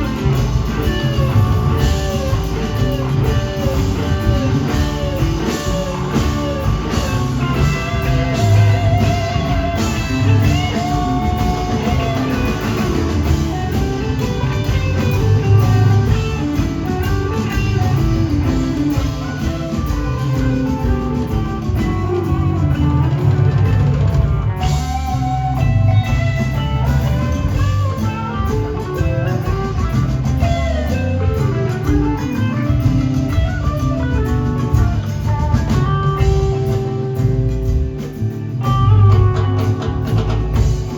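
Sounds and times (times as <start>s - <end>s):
bass guitar: 0.0s - 40.9s
drum kit: 0.0s - 40.9s
electric guitar lead: 0.0s - 40.9s.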